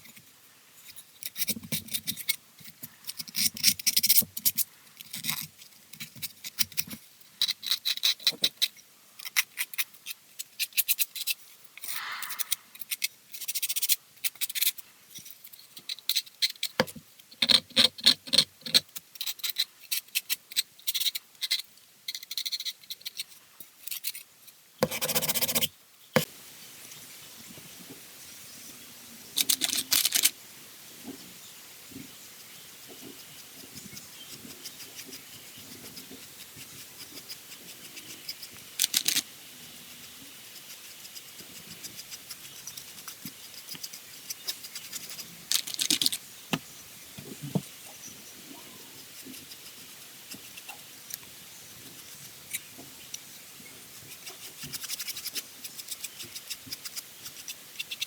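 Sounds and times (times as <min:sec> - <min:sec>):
hand tool scrapes and clicks: 0:00.9 - 0:16.9, 0:29.4 - 0:30.3, 0:36.4 - 0:39.2, 0:41.9 - 0:46.2
faint hiss: 0:11.3 - 0:15.7, 0:24.8 - 0:58.0.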